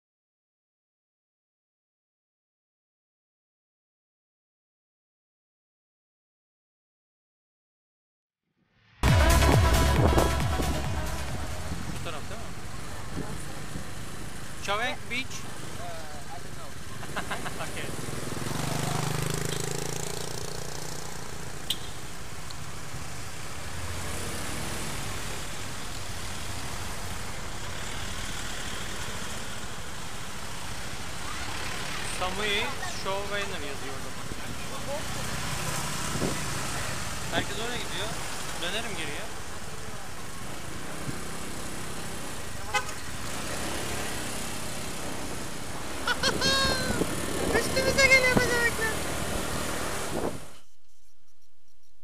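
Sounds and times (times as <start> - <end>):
road noise: 8.9 - 52.0
vehicle engine running: 9.0 - 51.0
short horn toot: 42.7 - 43.1.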